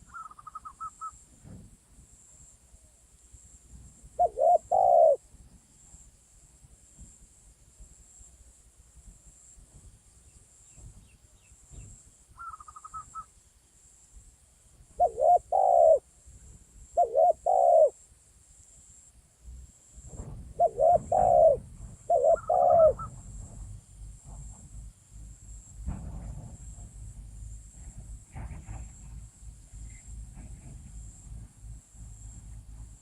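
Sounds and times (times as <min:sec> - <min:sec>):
faint high insect drone: 0:00.0 - 0:33.0
doves cooing: 0:04.2 - 0:05.2, 0:15.0 - 0:16.0, 0:17.0 - 0:18.0, 0:20.6 - 0:23.6.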